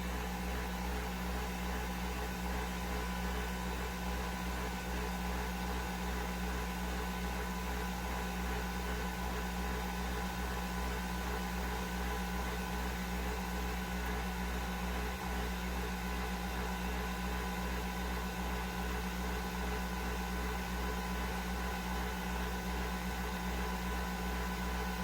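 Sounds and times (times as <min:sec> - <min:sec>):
coffee machine whirring hum: 0:00.0 - 0:25.0.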